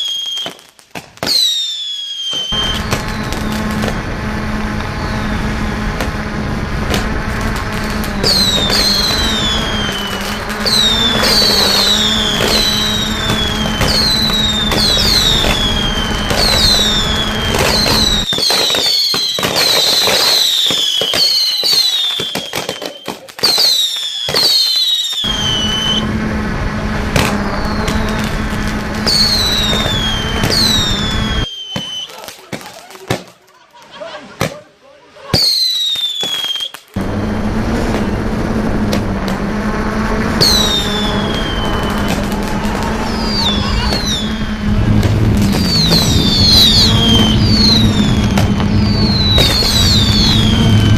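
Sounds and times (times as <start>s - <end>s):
fireworks cracks and pops: 0.0s - 34.6s, 35.3s - 39.5s, 40.3s - 50.9s
fireworks whistling: 0.0s - 50.9s
low hum: 2.6s - 18.3s, 25.3s - 31.5s, 37.0s - 50.9s.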